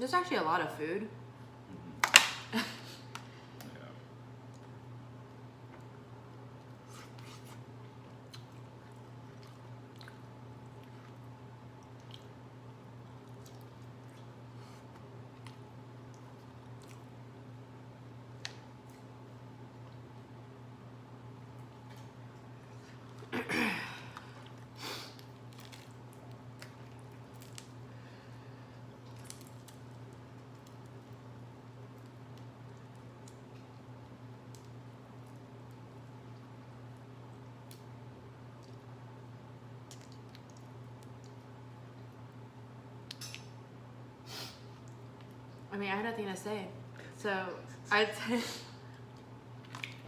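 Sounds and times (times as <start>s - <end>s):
shells cracking: 2.0s - 2.5s
chewing and squishing: 5.7s - 17.2s, 24.2s - 27.8s, 28.9s - 38.9s, 39.8s - 42.2s, 49.0s - 50.0s.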